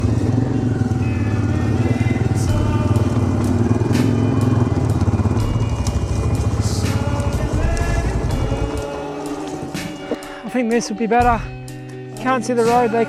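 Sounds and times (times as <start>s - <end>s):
motorcycle engine rumbling: 0.0s - 11.6s
music playing: 0.0s - 13.0s.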